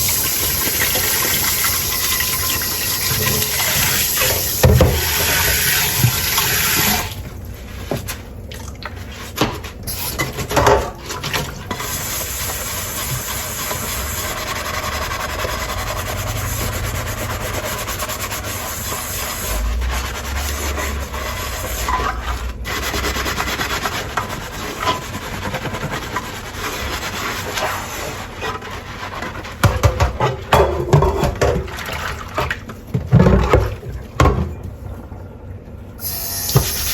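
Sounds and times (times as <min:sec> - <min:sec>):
tap running: 0:00.0 - 0:07.3, 0:36.4 - 0:36.9
sponge scrubbing dishes: 0:00.0 - 0:35.0.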